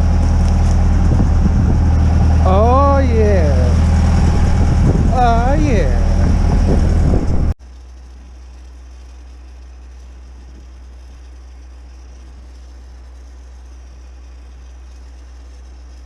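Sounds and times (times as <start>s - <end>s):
loud sound cutting off: 0.0s - 7.6s
steady low hum: 0.0s - 16.0s.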